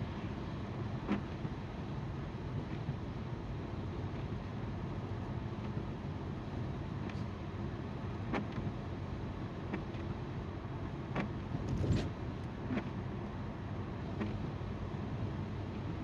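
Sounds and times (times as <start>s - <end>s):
car engine hum: 0.0s - 16.0s.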